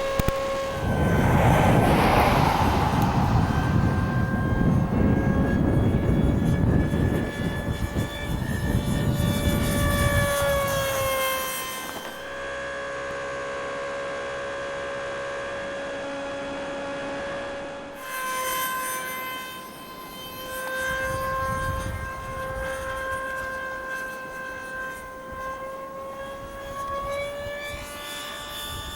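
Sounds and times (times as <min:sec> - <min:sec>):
wind rumbling on microphone: 0:00.0 - 0:11.2, 0:20.8 - 0:28.9
model plane motor whine: 0:00.0 - 0:28.9.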